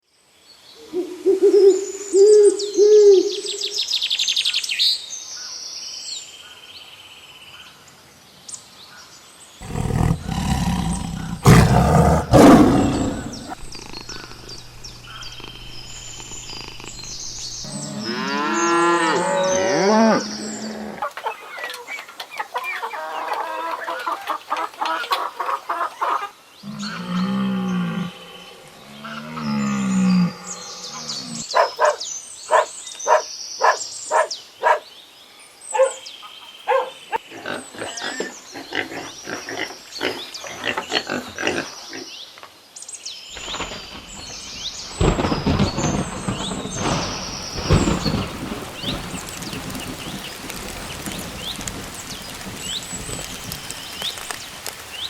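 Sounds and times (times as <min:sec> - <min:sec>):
thunder rumbles: 0:09.6 - 0:17.9, 0:43.4 - 0:55.0
rain rushing: 0:09.6 - 0:22.4, 0:43.3 - 0:55.0
animal calls: 0:09.6 - 0:34.8, 0:35.7 - 0:39.1.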